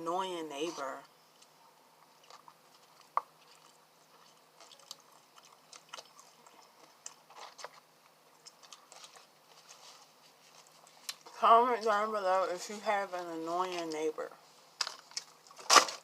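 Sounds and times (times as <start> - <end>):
chewing mouth clicks and smacks: 2.2 - 9.3.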